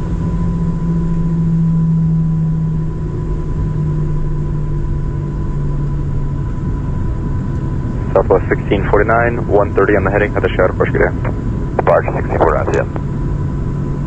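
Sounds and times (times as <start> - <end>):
jet engines idling: 0.0 - 14.0.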